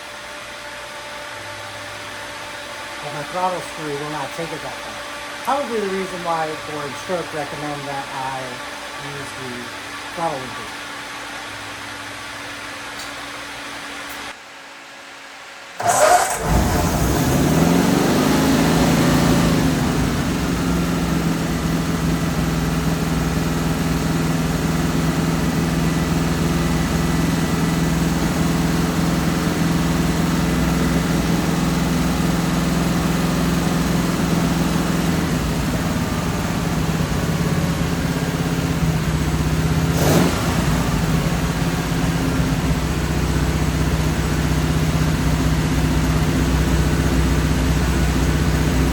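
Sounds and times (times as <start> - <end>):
car engine starting and idling: 15.8 - 48.9.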